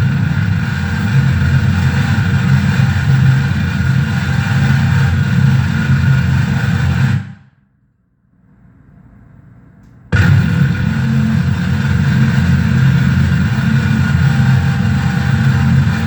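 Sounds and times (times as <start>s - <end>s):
harsh noise wall of bass and hiss: 0.0s - 7.5s, 10.1s - 16.0s.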